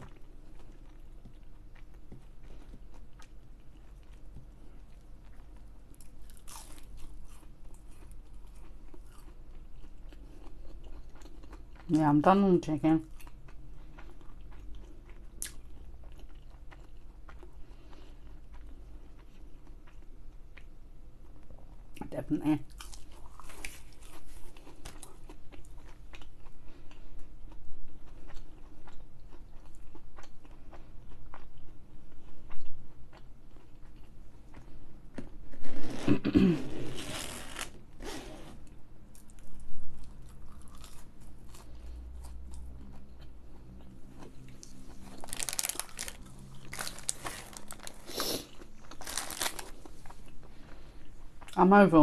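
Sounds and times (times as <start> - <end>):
crunching fried food: 0.0 - 11.9, 22.6 - 34.8, 39.1 - 51.6.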